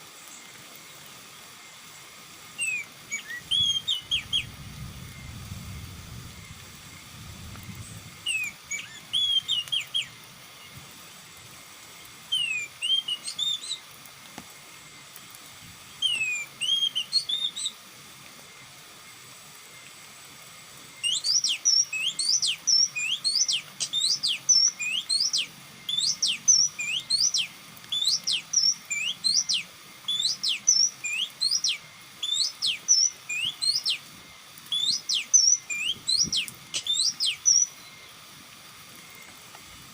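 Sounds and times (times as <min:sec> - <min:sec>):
bird whistling calls: 0:02.6 - 0:05.3, 0:07.8 - 0:10.2, 0:12.3 - 0:13.9, 0:16.0 - 0:17.8, 0:21.0 - 0:34.1, 0:34.7 - 0:38.1.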